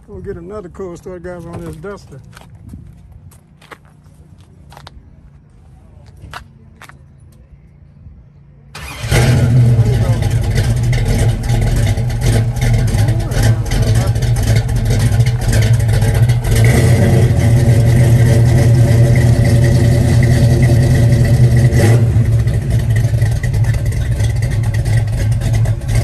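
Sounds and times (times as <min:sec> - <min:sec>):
car engine running: 0:08.8 - 0:26.0.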